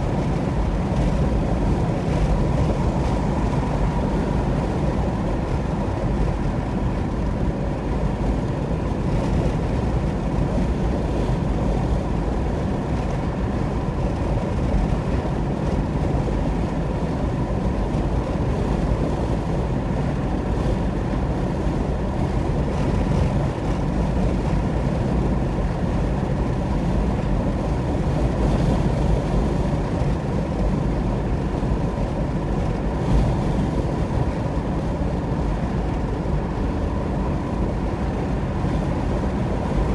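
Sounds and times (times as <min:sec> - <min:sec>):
car tyre and engine rumble: 0:00.0 - 0:39.9.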